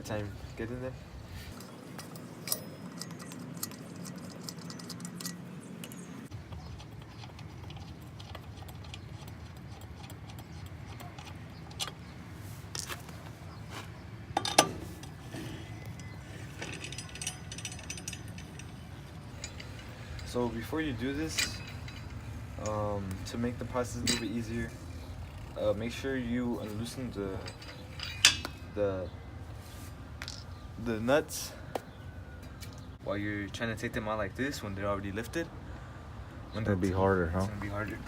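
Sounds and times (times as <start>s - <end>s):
light metal clinks: 1.4s - 9.3s, 14.4s - 28.8s
lug wrench clicking and rattling: 1.5s - 12.1s, 14.4s - 26.0s, 26.6s - 28.7s.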